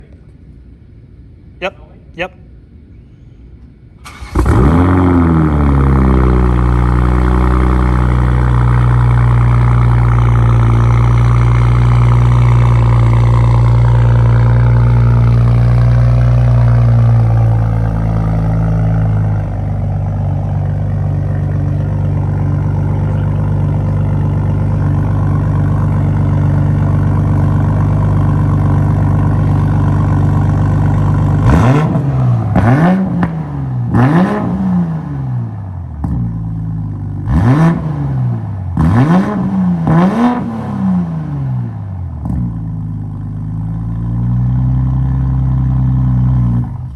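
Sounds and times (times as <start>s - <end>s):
car engine starting and idling: 2.5s - 46.9s
engine revving blips: 31.4s - 36.3s.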